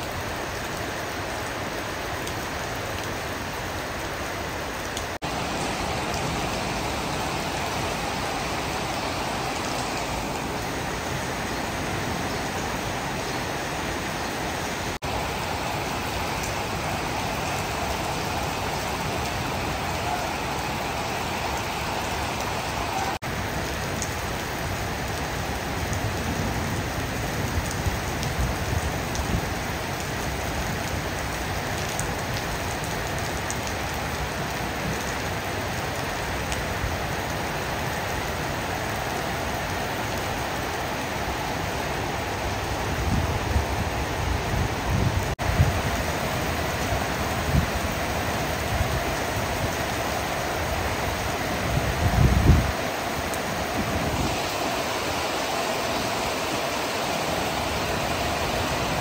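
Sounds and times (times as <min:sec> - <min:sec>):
heavy rain hissing: 0:00.0 - 0:59.0.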